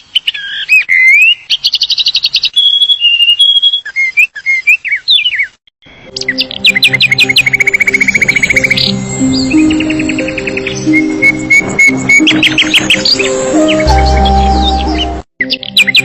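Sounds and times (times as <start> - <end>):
songbird singing: 0.0 - 16.0
soft background music: 6.1 - 16.0.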